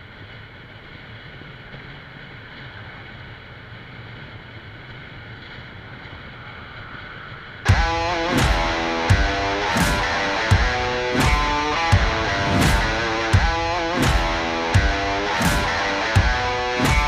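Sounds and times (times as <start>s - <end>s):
wind rush: 0.7s - 17.0s
guitar music: 7.7s - 17.0s
scooter engine drone: 7.7s - 17.0s.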